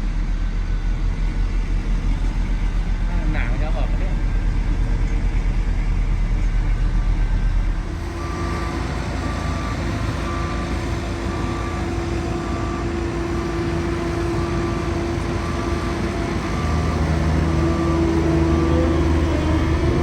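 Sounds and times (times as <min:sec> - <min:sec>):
heavy vehicle engine rumbling: 0:00.0 - 0:20.0
backup alarm beeping: 0:07.9 - 0:13.6, 0:14.7 - 0:20.0.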